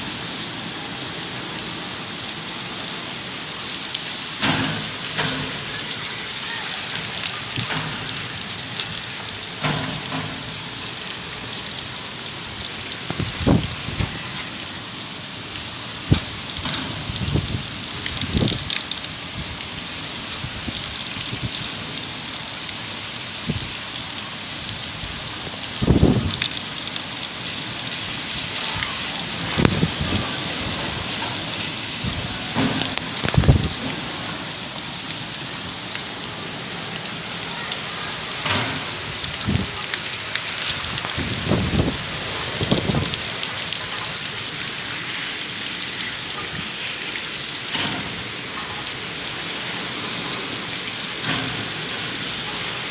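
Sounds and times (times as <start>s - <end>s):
heavy rain pouring: 0.0s - 52.9s.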